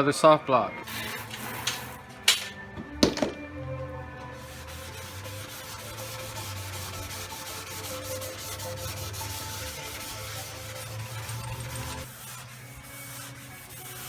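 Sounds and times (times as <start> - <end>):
sandpaper scratching back and forth: 0.8 - 2.0, 4.3 - 14.0.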